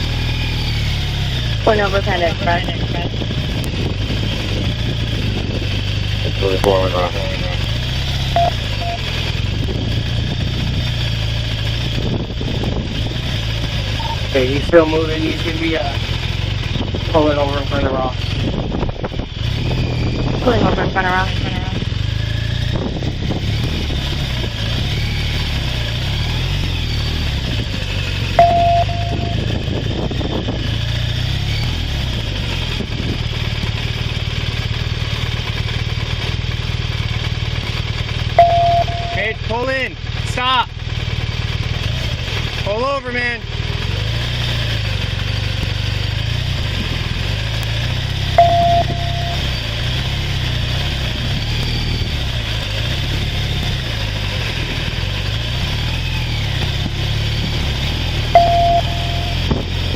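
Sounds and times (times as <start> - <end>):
motorcycle engine running: 0.0 - 59.9
short beep: 8.4 - 9.0, 14.0 - 14.3, 28.4 - 29.6, 38.4 - 39.4, 48.4 - 49.6, 58.4 - 59.6.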